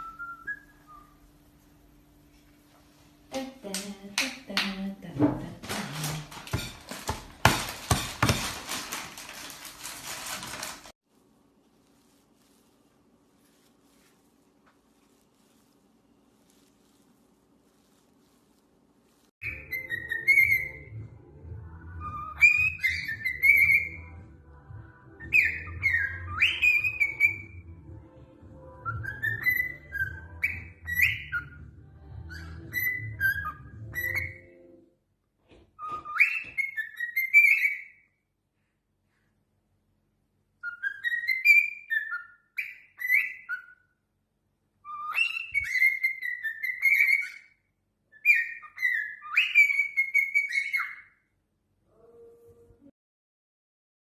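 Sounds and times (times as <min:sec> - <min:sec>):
parrot whistling: 0:19.4 - 0:20.9, 0:22.0 - 0:24.0, 0:25.2 - 0:27.6, 0:28.8 - 0:31.6, 0:32.3 - 0:34.6, 0:40.6 - 0:43.9, 0:44.8 - 0:51.2.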